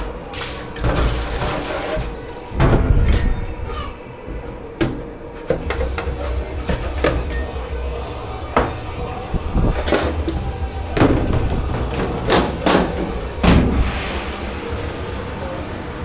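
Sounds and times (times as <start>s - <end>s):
dishes and pots clattering: 0.0s - 7.8s.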